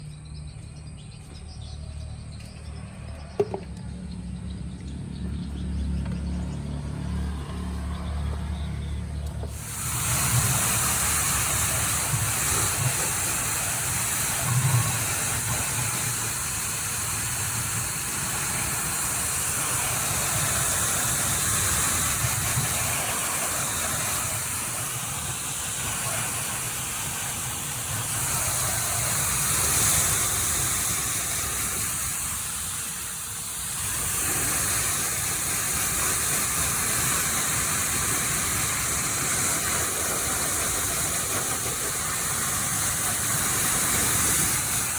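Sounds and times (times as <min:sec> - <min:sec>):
pressure washer motor humming: 0:05.0 - 0:44.9
pressure washer spray hissing: 0:09.4 - 0:44.9.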